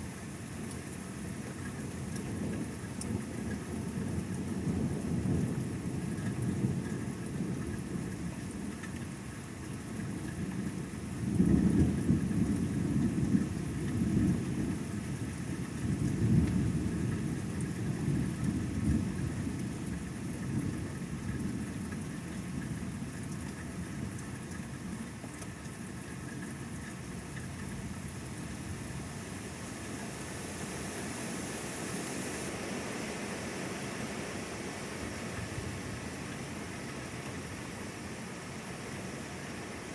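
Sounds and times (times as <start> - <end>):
rain hissing: 27.6 - 39.9.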